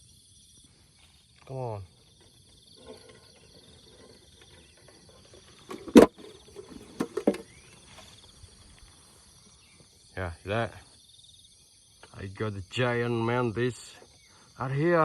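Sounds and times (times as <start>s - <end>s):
insects chorus: 0.0s - 15.0s
handling knock: 5.7s - 7.5s.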